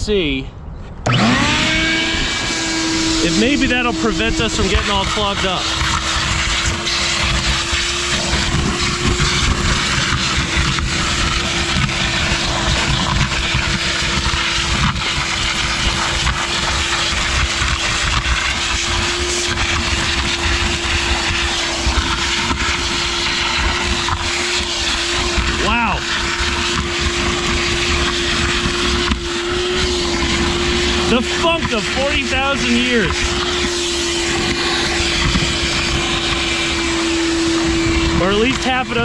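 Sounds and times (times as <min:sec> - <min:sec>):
vacuum cleaner running: 0:01.0 - 0:39.0.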